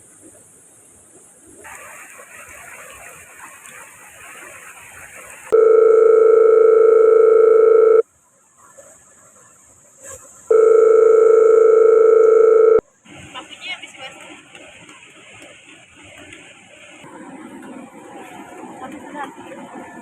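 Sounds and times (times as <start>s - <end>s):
long steady beeps: 5.6s - 8.0s, 10.5s - 12.8s.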